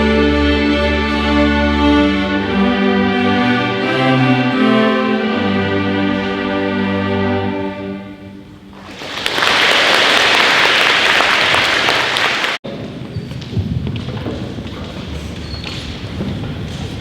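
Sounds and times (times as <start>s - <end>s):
string orchestra chord: 0.0s - 8.7s
audience applauding: 8.8s - 12.6s.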